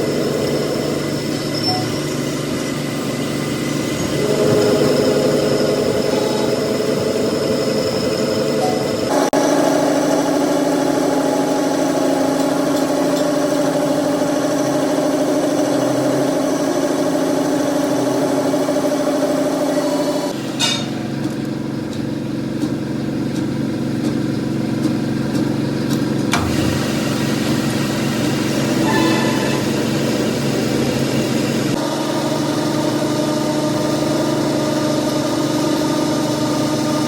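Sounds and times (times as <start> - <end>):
workshop machinery humming: 0.0 - 37.0.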